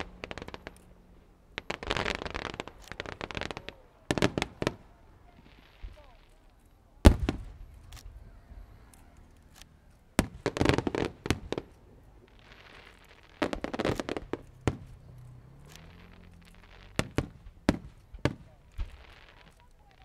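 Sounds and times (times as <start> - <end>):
crackling hiss of shells: 0.0 - 1.0, 8.8 - 20.0
fireworks bangs: 0.0 - 20.0.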